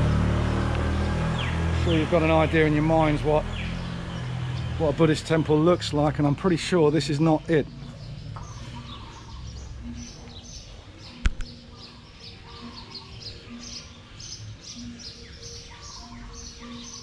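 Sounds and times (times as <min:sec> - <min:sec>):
birds chirping: 0:00.0 - 0:17.0
sharp click: 0:11.2 - 0:11.6.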